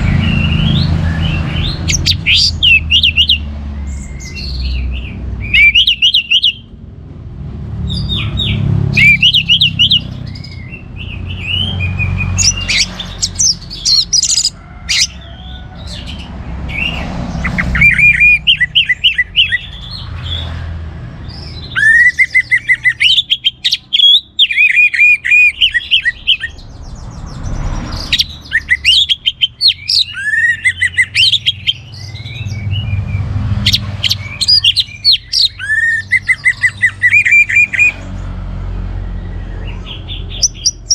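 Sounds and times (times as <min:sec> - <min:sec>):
thrush singing whistled notes: 0:00.0 - 0:06.8, 0:07.9 - 0:20.6, 0:21.2 - 0:38.1, 0:39.0 - 0:40.9.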